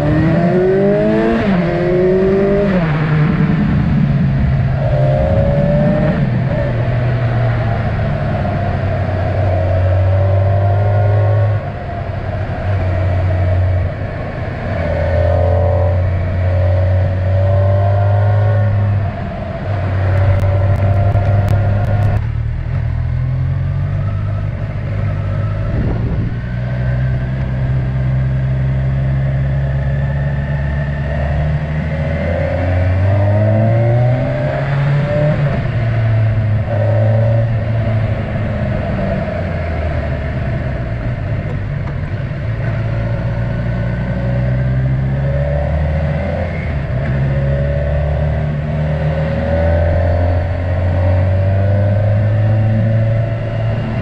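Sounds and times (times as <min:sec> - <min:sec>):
motorcycle engine running: 0:11.5 - 0:31.7.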